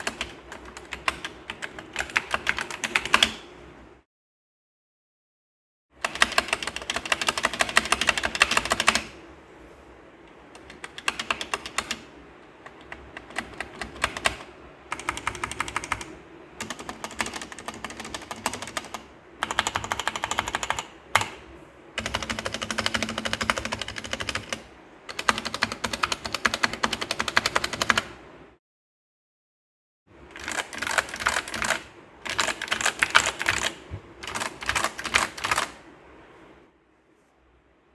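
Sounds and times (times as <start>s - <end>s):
mechanical keyboard typing: 0.0s - 3.4s, 6.0s - 9.2s, 10.6s - 21.4s, 22.0s - 28.1s, 30.3s - 35.8s.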